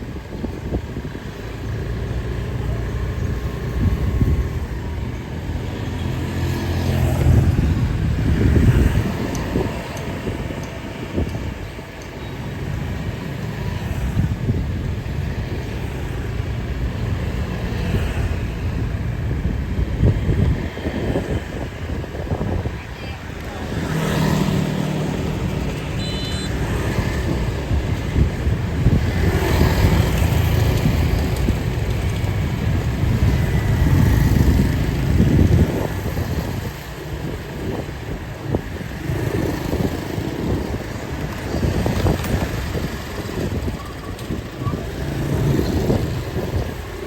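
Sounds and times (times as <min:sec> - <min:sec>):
vehicles passing close by: 0:00.0 - 0:47.0.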